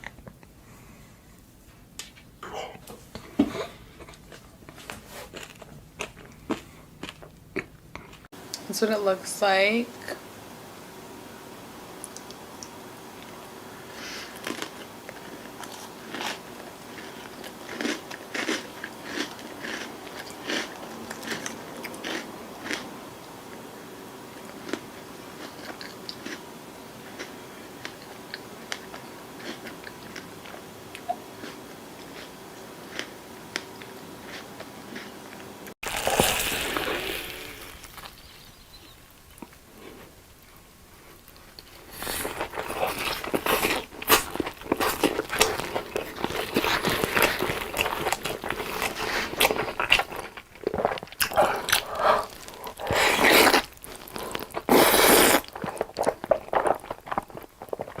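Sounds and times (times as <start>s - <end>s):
faint steady hum: 0.0s - 58.0s
crunching and chewing: 4.0s - 8.3s, 12.1s - 23.6s, 24.3s - 58.0s
burst of noise: 35.8s - 38.2s.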